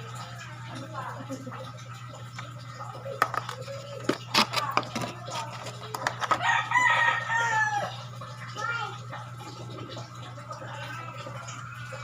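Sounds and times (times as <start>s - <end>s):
rooster crowing: 6.3s - 8.0s.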